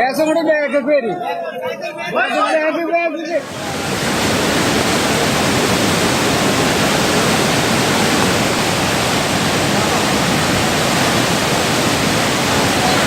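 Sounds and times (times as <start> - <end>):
rushing water: 3.4 - 13.0.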